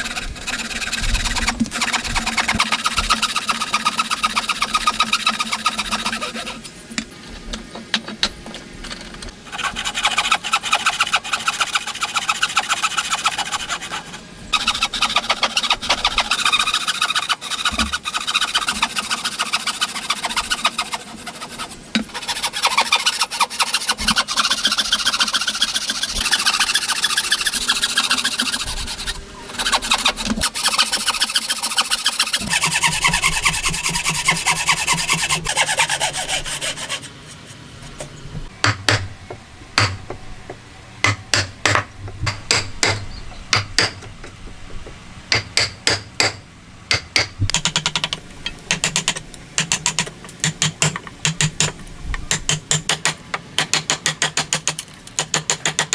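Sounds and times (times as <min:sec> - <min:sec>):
hand tool rasping on wood: 0:00.0 - 0:06.6, 0:09.5 - 0:37.1
low hum: 0:37.6 - 0:45.3.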